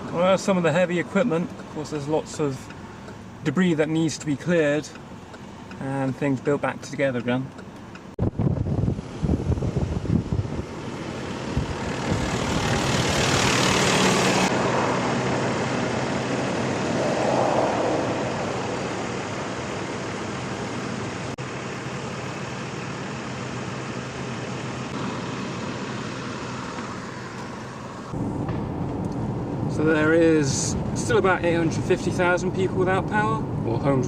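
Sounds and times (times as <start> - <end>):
road traffic: 0.0 - 34.0
vehicle passing close: 8.7 - 21.3.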